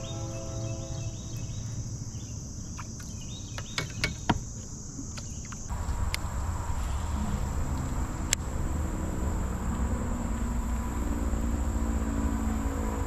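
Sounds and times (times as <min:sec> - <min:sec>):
insects buzzing and chirping: 0:00.0 - 0:13.0
low rumble: 0:05.7 - 0:13.0.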